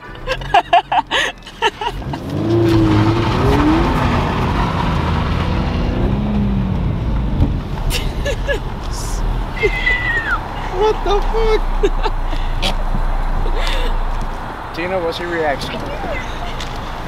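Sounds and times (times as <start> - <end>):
car engine revving from inside: 2.0 - 7.6.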